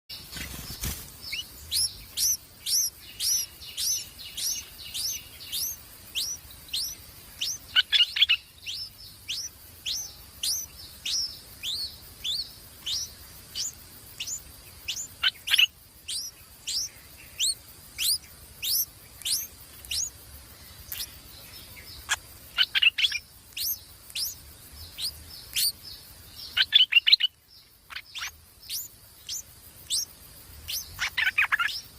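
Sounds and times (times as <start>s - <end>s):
rapid lower bird notes: 0.3s - 20.1s
bird chirps sweeping downward: 1.3s - 20.1s, 20.9s - 25.8s.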